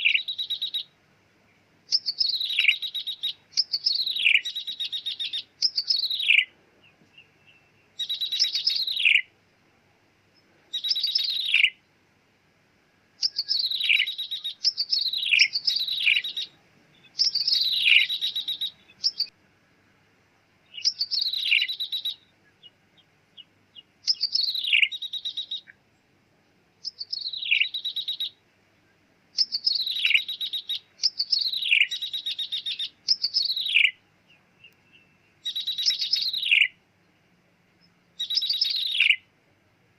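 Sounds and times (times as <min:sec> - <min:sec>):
bird calling with buzzy trill: 0:00.0 - 0:01.0, 0:01.9 - 0:09.3, 0:10.7 - 0:11.9, 0:13.2 - 0:19.4, 0:20.6 - 0:25.8, 0:26.8 - 0:28.4, 0:29.4 - 0:36.8, 0:37.8 - 0:39.3.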